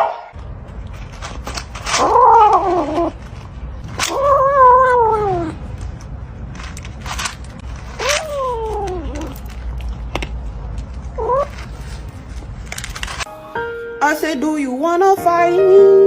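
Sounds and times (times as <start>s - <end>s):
cat yowling: 1.9s - 3.2s, 4.0s - 5.7s, 8.0s - 9.5s.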